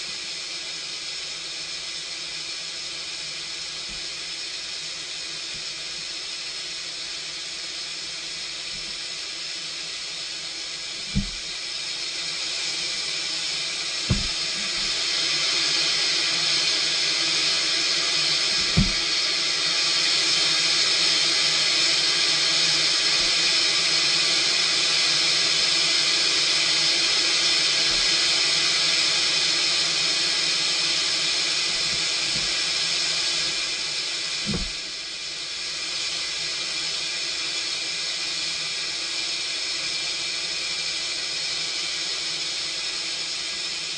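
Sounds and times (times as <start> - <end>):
high-pressure water jets hissing: 0.0 - 43.9
short thumps: 11.1 - 11.4, 14.1 - 14.9, 18.6 - 19.0, 34.5 - 34.8.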